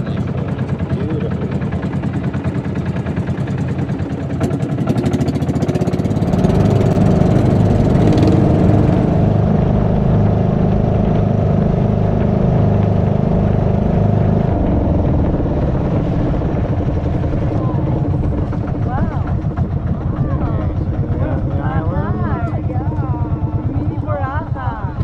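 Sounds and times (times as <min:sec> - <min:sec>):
motorboat engine running: 0:00.0 - 0:25.0.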